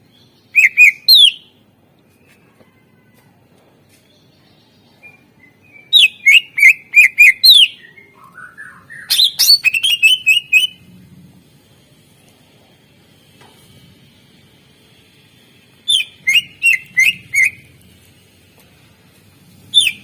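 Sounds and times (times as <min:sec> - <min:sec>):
bird chirping and warbling: 0:00.2 - 0:01.5, 0:04.7 - 0:10.9, 0:15.8 - 0:17.8, 0:19.6 - 0:20.0.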